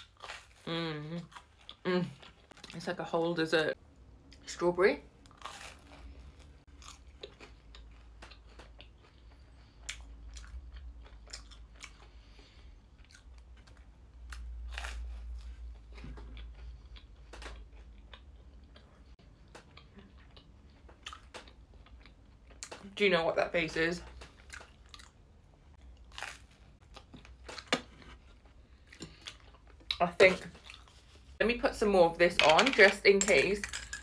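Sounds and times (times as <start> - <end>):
biting and chewing toast: 5.2 - 22.8, 25.8 - 30.0.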